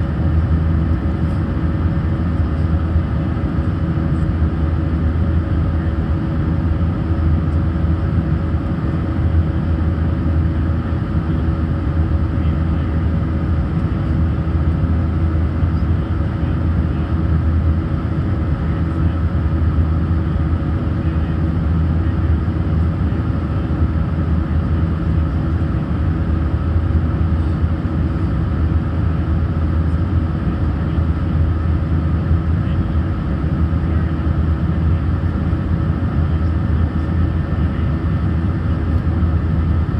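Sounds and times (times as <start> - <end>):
airflow rumble: 0.0 - 39.9
constant hums: 0.0 - 39.9
jet engine drone: 0.0 - 39.9.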